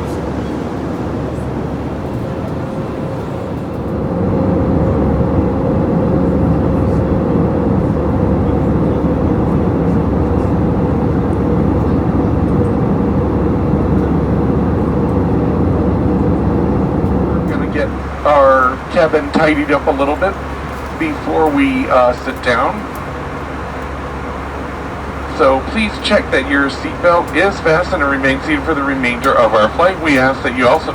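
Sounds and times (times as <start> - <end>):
jet engine drone: 0.0 - 30.9
steady cabin hum: 0.0 - 30.9.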